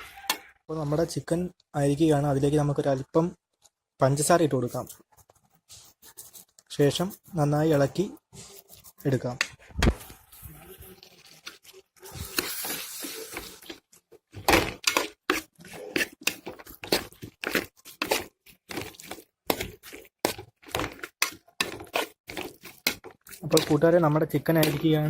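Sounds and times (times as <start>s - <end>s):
spoon scraping a pan: 10.3s - 25.0s.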